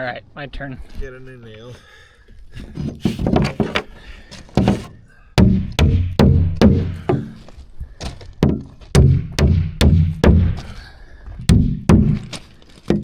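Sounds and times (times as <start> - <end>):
hammer striking nail into plywood: 4.6 - 7.3, 8.4 - 10.5, 11.5 - 12.2.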